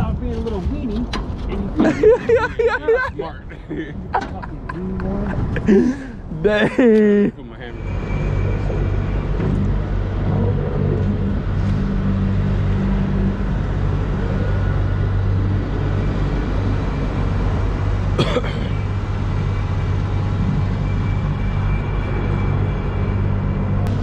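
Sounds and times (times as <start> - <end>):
low engine drone: 1.2 - 24.0.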